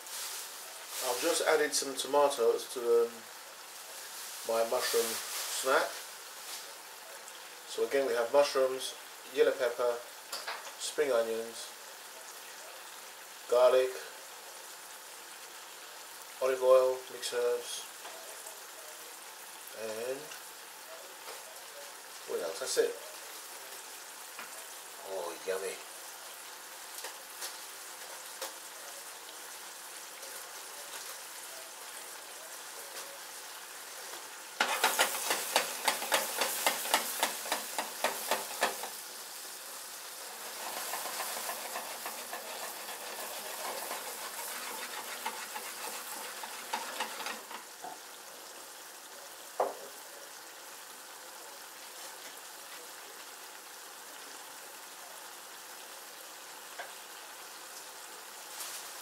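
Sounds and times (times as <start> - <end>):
vegetables frying in a pan: 0.0 - 59.0
oil crackling and popping: 10.2 - 10.8, 23.1 - 48.5.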